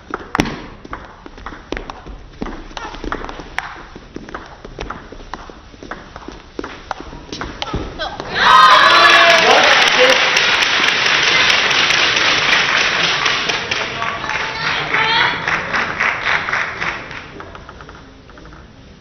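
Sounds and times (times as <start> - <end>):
people shouting: 8.0 - 9.7
crowd applauding and cheering: 8.3 - 17.4.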